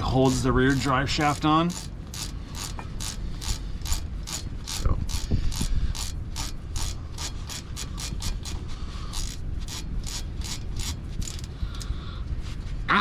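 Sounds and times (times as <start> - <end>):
ratchet wrench clicking: 0.0 - 12.0.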